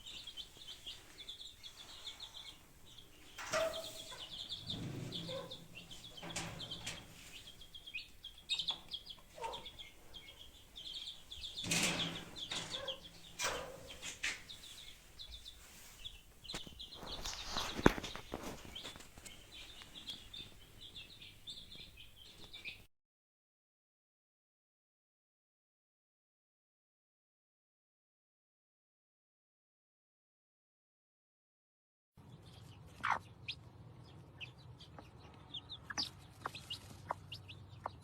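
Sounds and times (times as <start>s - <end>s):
chickens clucking: 0.0s - 22.8s, 32.6s - 38.0s
high chirping: 0.0s - 22.8s
wings flapping: 16.5s - 19.3s.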